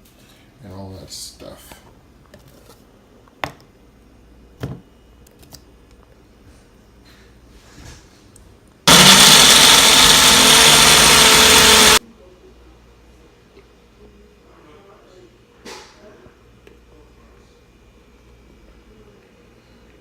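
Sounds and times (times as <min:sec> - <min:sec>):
blender running: 0:08.9 - 0:12.0.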